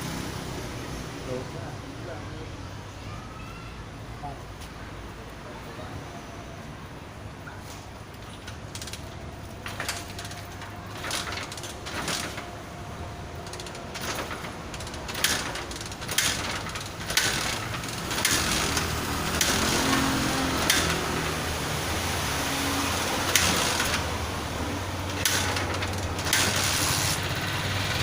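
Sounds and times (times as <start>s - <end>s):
hand tools clicking and scraping: 7.6s - 12.6s, 13.4s - 21.4s, 23.2s - 27.3s.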